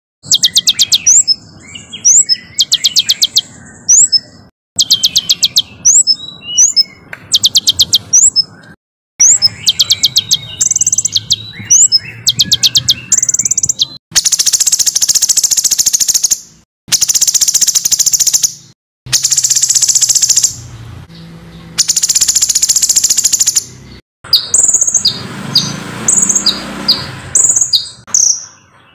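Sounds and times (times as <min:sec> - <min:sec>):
bird rising chirps: 0:00.2 - 0:28.9
songbird harsh rapid notes: 0:00.2 - 0:28.9.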